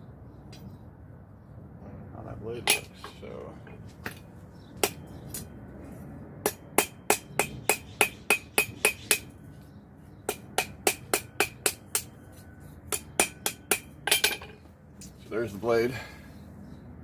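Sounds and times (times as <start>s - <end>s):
metal-on-metal taps ringing: 2.6s - 3.8s, 12.9s - 14.6s.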